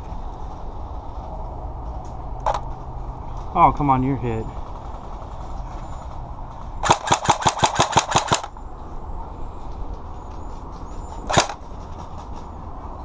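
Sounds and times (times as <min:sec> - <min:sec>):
airsoft gun firing: 0:06.8 - 0:08.5, 0:11.3 - 0:11.6.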